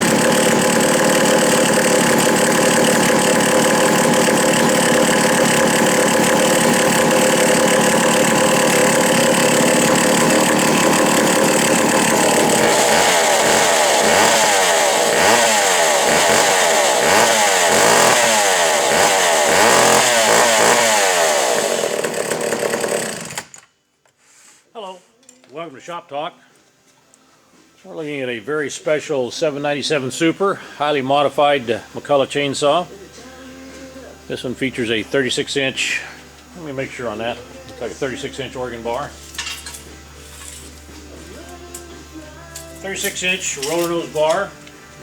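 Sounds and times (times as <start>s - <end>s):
chainsaw revving: 0.0s - 23.6s, 42.8s - 44.5s.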